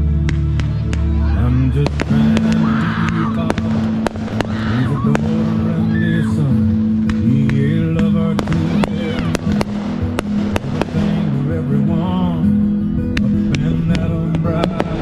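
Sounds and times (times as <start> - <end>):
loud music: 0.0 - 15.0
fireworks bangs and pops: 1.8 - 5.7, 6.9 - 11.5, 13.2 - 15.0.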